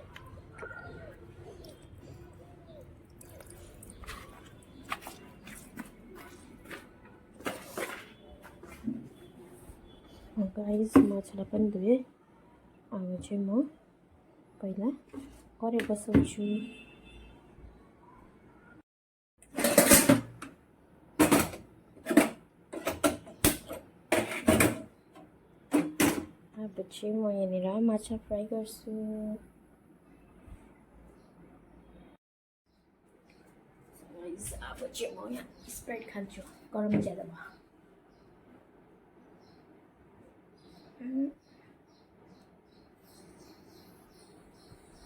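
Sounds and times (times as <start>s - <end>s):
fish washed in water: 0.4s - 6.0s
metal pans clanking and scraping: 19.4s - 20.5s, 21.2s - 24.9s, 25.8s - 26.3s.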